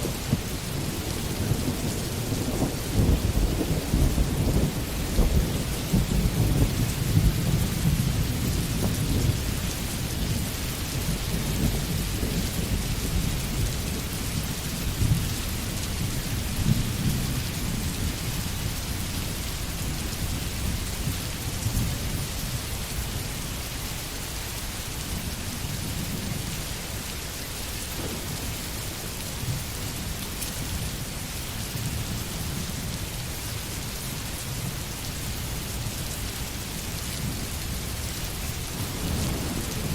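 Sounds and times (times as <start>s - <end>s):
rolling thunder rumble: 0.0s - 23.1s, 27.7s - 31.1s, 36.8s - 39.9s
steady rain falling: 0.0s - 39.9s.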